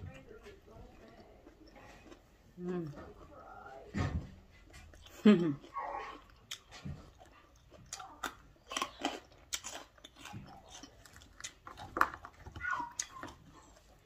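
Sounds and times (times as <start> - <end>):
person biting and chewing food: 4.6 - 14.0.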